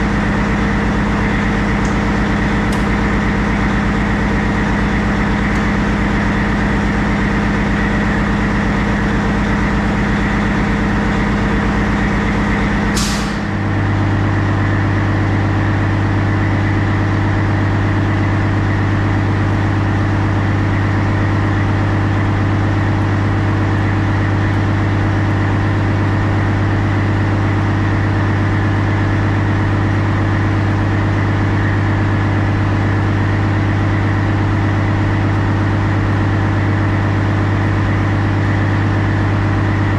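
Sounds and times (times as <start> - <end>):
diesel truck engine idling: 0.0 - 39.9
air hiss: 13.0 - 13.5.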